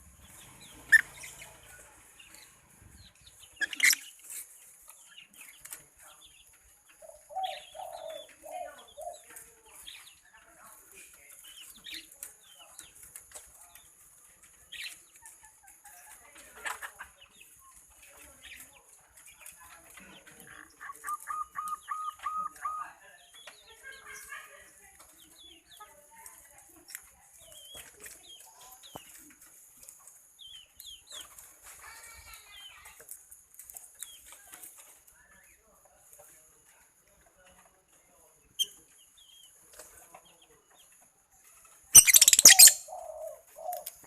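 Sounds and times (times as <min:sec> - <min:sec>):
birds chirping: 0:00.0 - 0:15.3, 0:17.1 - 0:25.8, 0:41.7 - 0:44.0
bird clucking notes: 0:00.6 - 0:01.6, 0:03.5 - 0:04.2, 0:20.4 - 0:22.9, 0:42.0 - 0:44.0.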